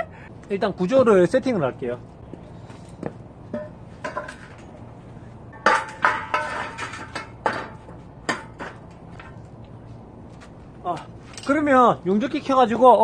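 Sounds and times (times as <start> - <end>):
steel parts clanking: 3.6 - 4.8, 5.5 - 9.4
sharp metallic knocks ringing: 5.5 - 8.9.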